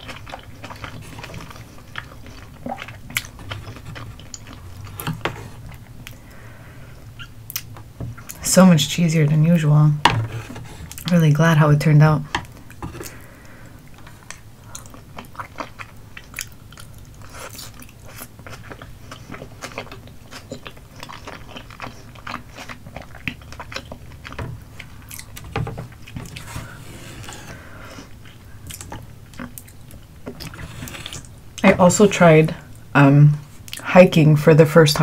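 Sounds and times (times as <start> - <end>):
close chewing with mouth clicks: 0.0 - 8.4, 12.3 - 31.7.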